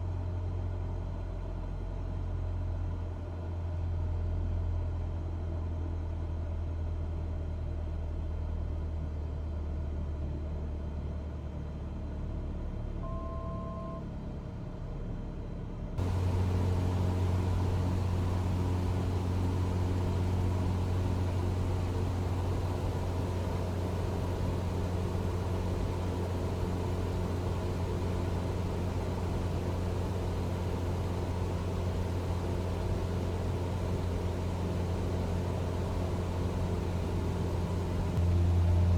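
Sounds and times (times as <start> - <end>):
propeller plane engine droning: 16.0 - 38.9.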